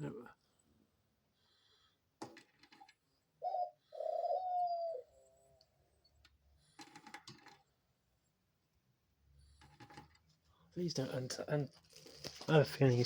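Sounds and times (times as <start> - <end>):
dove cooing: 3.4 - 5.4
rapid clicking and scratching: 9.6 - 10.3.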